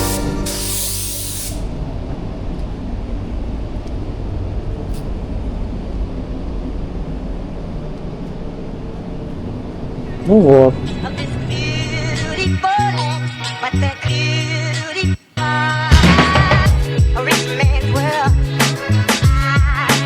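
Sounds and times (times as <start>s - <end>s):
loud hiss of air: 0.0s - 1.8s
steady low rumble: 0.0s - 14.4s.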